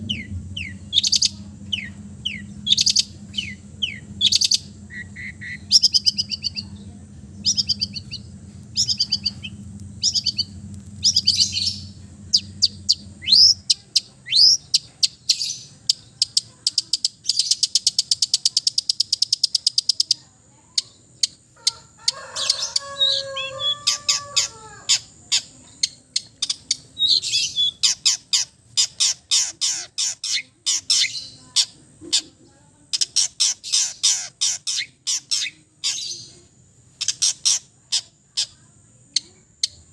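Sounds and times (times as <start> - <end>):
low hum: 0.0 - 15.0
bird singing varied song: 0.0 - 39.9.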